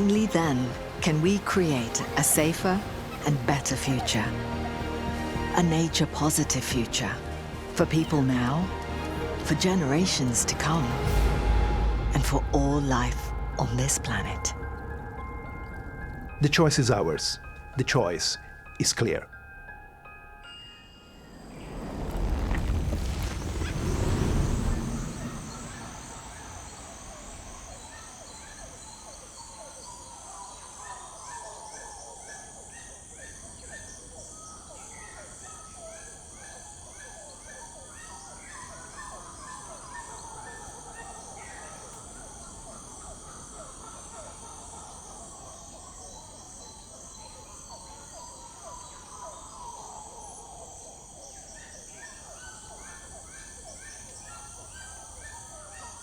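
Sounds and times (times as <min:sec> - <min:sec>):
music: 0:00.0 - 0:21.3
birds chirping: 0:00.0 - 0:56.0
insects shrilling: 0:21.1 - 0:56.0.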